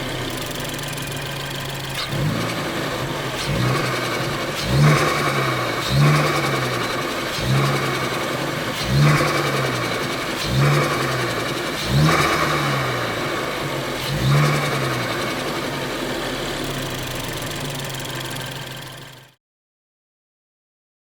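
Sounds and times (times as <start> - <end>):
car engine revving: 0.0 - 19.3
car engine idling: 0.0 - 19.4.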